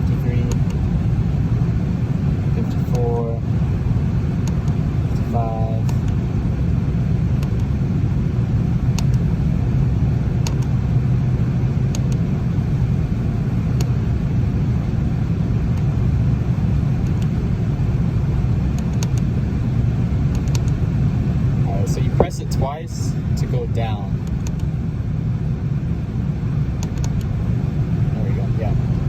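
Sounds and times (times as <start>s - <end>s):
hvac unit drone: 0.0s - 29.0s
light clicks: 7.4s - 7.7s, 8.9s - 9.2s, 10.4s - 10.7s, 17.0s - 17.4s, 18.8s - 19.3s, 20.3s - 20.8s, 24.2s - 24.7s, 26.8s - 27.3s.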